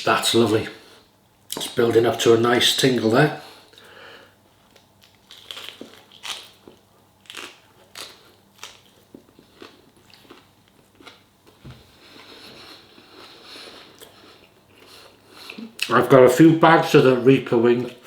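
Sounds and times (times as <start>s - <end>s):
faint steady hiss: 0.0s - 18.0s
person chewing food: 4.6s - 15.9s.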